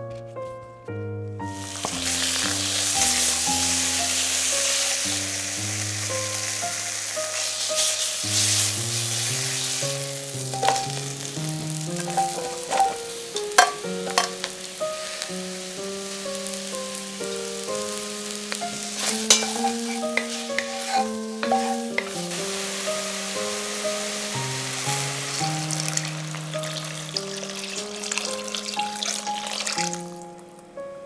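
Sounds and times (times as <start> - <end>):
background music: 0.0 - 31.0
chicken sizzling in hot oil: 1.5 - 30.4
tongs clicking against pot: 19.2 - 22.1.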